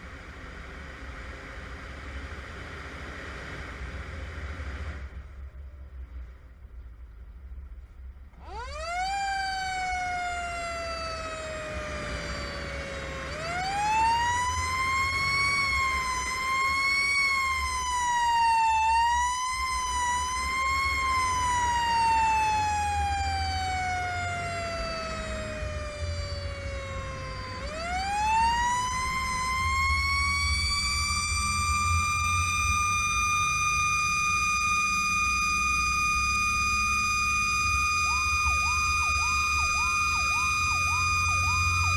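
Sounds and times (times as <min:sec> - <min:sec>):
low engine rumble: 0:00.0 - 0:41.9
fire truck siren: 0:08.4 - 0:41.9.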